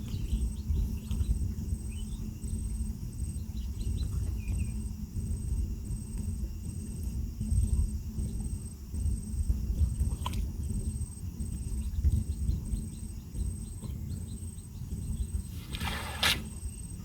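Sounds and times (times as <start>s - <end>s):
insects buzzing in pulses: 10.6s - 17.0s
short rushing noise: 15.5s - 16.6s.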